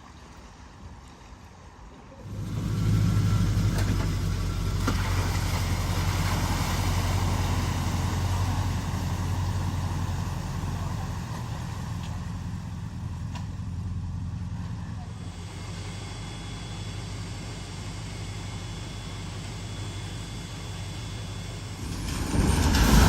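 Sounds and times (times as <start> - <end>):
water rushing: 2.2 - 13.2, 21.7 - 23.0
vehicle engine running: 2.2 - 23.0.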